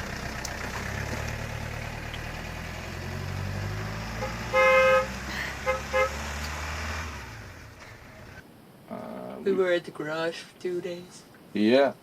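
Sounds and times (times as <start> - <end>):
vehicle engine running: 0.0 - 8.4
vehicle horn toots: 4.2 - 6.3.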